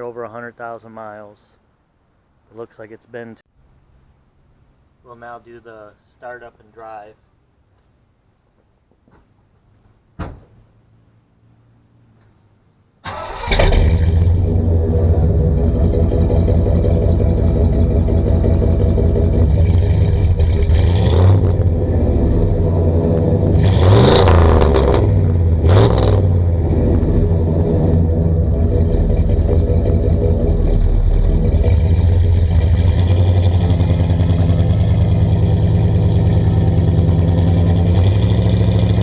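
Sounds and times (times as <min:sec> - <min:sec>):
truck engine idling and revving: 0:13.1 - 0:39.0.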